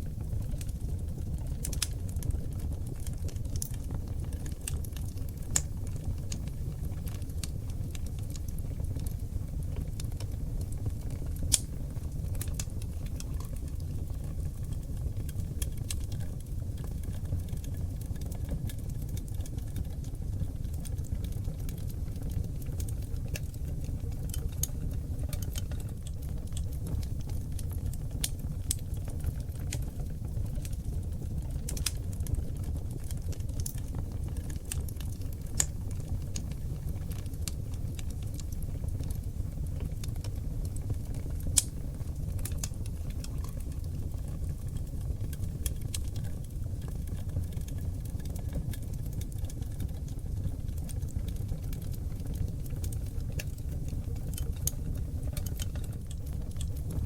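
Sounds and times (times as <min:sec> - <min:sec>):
burning logs crackling and popping: 0:00.0 - 0:57.0
low rumble of flames: 0:00.0 - 0:57.0.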